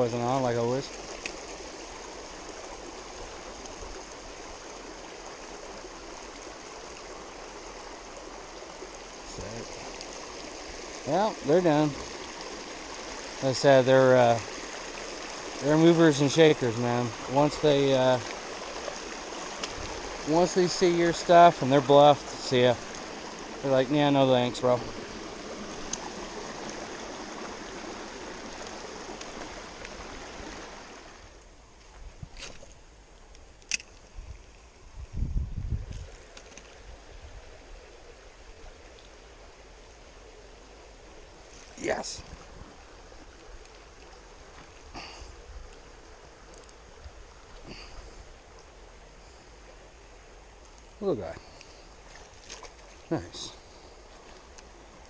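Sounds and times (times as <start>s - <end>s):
creek flowing over rocks: 0.0s - 55.0s
faint ticks: 50.6s - 53.0s, 54.2s - 54.7s.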